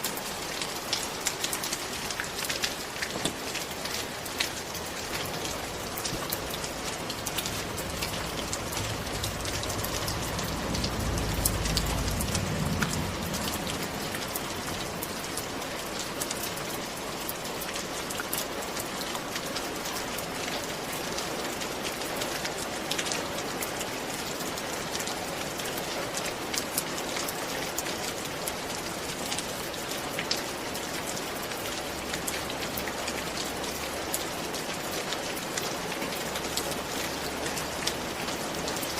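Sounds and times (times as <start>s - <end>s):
steady rain falling: 0.0s - 38.9s
low rumble: 7.0s - 15.3s.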